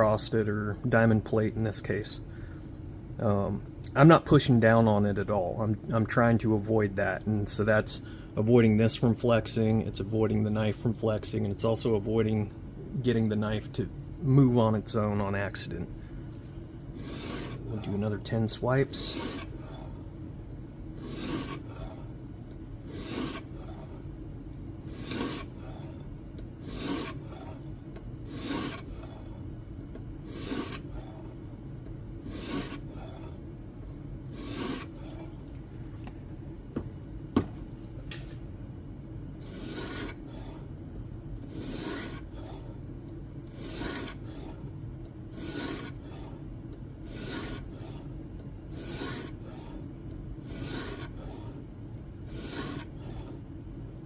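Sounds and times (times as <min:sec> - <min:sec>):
sharpening plate scraping blade: 0:17.0 - 0:17.6, 0:19.0 - 0:19.6, 0:21.0 - 0:21.7, 0:22.9 - 0:23.5, 0:24.9 - 0:25.5, 0:26.6 - 0:27.2, 0:28.3 - 0:28.9, 0:30.3 - 0:30.9, 0:32.3 - 0:32.9, 0:34.4 - 0:34.9, 0:39.4 - 0:40.6, 0:41.5 - 0:42.2, 0:43.5 - 0:44.5, 0:45.4 - 0:46.0, 0:47.1 - 0:47.7, 0:48.8 - 0:49.8, 0:50.5 - 0:51.2, 0:52.3 - 0:53.0.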